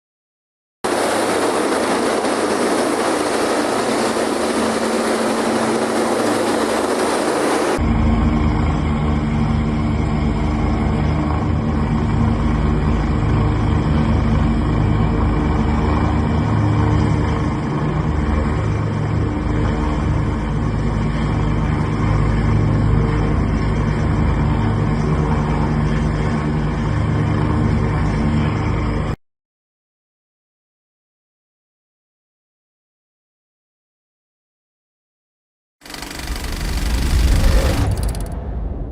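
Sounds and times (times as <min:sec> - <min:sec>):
helicopter rotor and engine: 0:00.8 - 0:29.2, 0:35.8 - 0:38.9.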